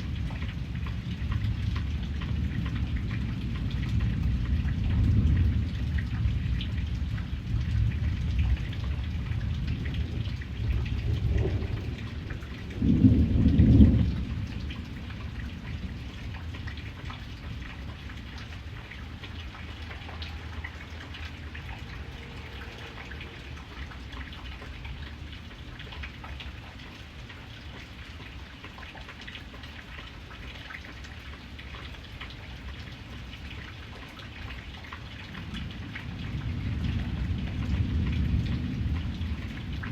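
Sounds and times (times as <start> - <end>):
thunder rumbling: 0.0 - 26.4, 35.4 - 39.9
rain falling: 0.0 - 39.9.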